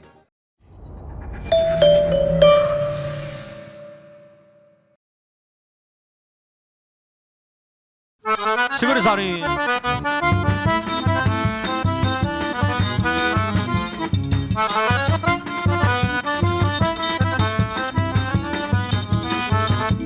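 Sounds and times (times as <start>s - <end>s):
accordion melody: 1.6s - 4.1s, 8.3s - 20.0s
drum and bass beat: 8.8s - 20.0s.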